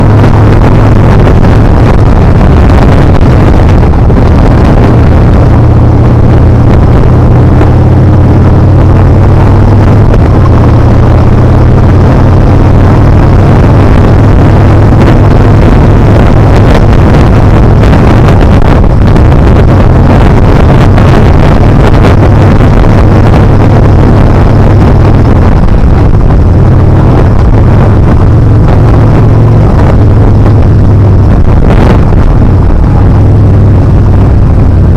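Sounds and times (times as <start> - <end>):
motorcycle engine running: 0.0 - 34.9
wind rushing over microphone: 0.0 - 34.9.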